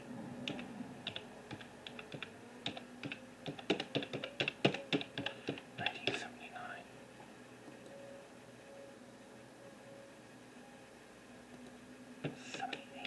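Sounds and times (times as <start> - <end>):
light clicks and taps: 0.5 - 6.3, 11.5 - 13.0.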